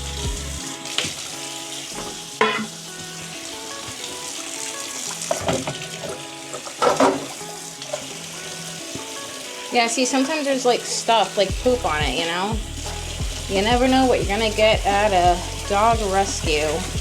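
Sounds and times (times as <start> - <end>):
scrubbing and water splashing: 0.0 - 17.0
dishes clattering together: 1.9 - 2.8, 5.3 - 8.2.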